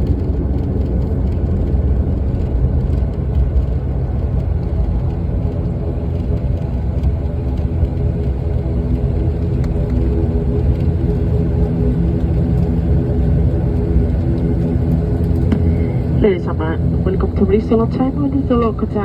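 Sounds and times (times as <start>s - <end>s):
airliner cabin rumble: 0.0s - 19.0s.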